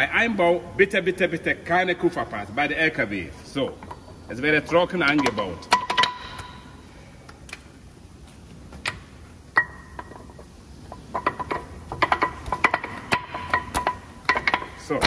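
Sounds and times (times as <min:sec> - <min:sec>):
metal clinks and knocks: 0:05.0 - 0:06.6, 0:09.6 - 0:15.0.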